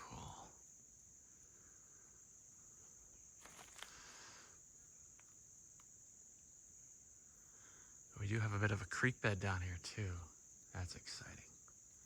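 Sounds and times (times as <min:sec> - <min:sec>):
crickets trilling: 0:00.0 - 0:12.0
soft rustle: 0:03.4 - 0:04.1.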